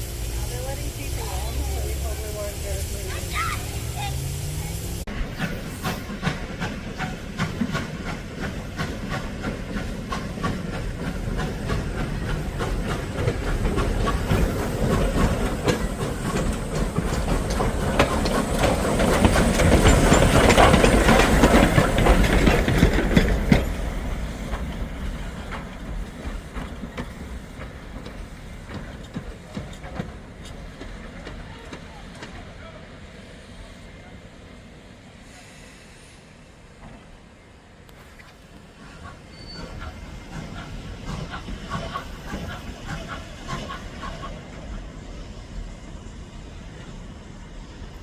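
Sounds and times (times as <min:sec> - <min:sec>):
train wheels clattering on rails: 0:05.1 - 0:32.8, 0:37.9 - 0:45.2.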